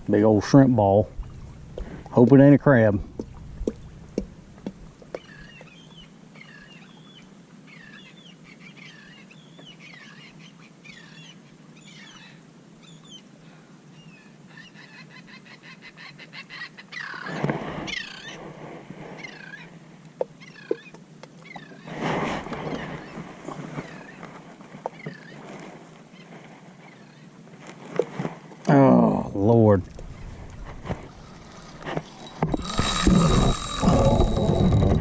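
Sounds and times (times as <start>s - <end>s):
bird squawking: 3.8s - 6.7s.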